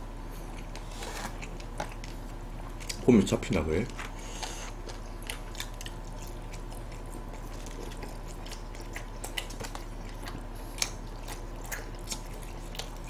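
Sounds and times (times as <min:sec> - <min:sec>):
steady low hum: 0:00.0 - 0:13.0
people chewing: 0:00.3 - 0:13.0.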